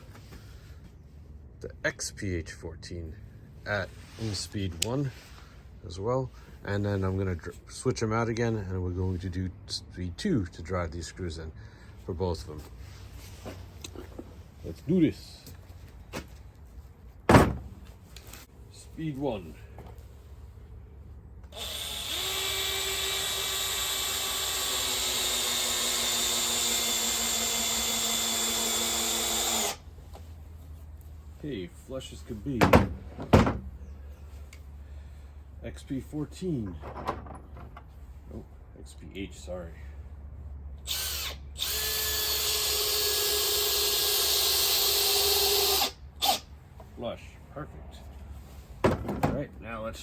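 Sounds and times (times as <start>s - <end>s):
cordless drill motor whine: 21.5s - 29.8s, 40.8s - 46.4s.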